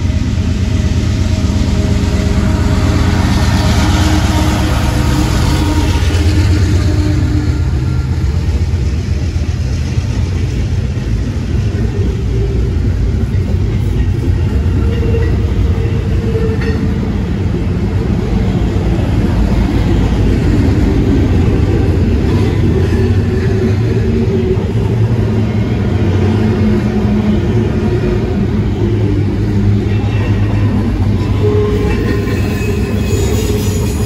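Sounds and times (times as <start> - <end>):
freight train passing: 0.0 - 34.0.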